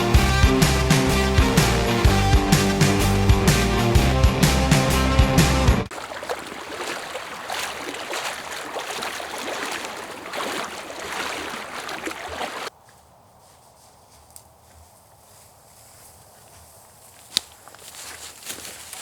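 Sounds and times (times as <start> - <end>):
river water flowing and splashing: 0.0 - 4.0, 5.9 - 12.7.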